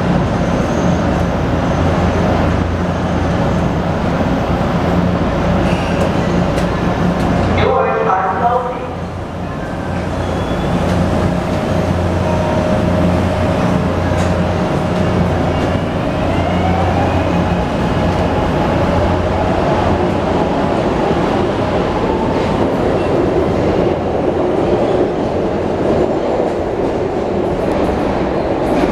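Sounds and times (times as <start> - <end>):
train wheels rumbling: 8.2 - 28.9.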